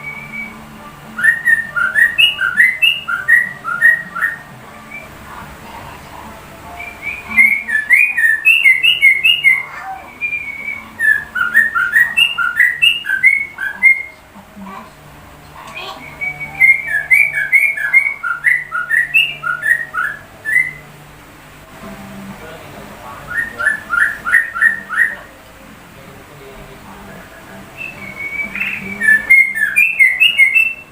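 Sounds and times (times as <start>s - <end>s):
bird whistled song: 0.0s - 5.2s, 6.7s - 14.2s, 15.8s - 20.9s, 23.3s - 25.3s, 27.7s - 30.9s.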